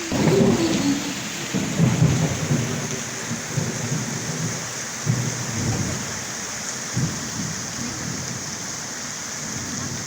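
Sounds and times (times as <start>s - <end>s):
thunder rumbling: 0.0s - 6.2s
heavy rain pouring: 0.0s - 10.0s.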